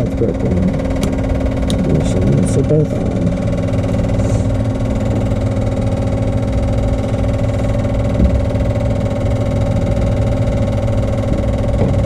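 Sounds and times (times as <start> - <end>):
electrical hum and whine: 0.0 - 12.0
low knock: 8.1 - 8.8, 11.3 - 12.0.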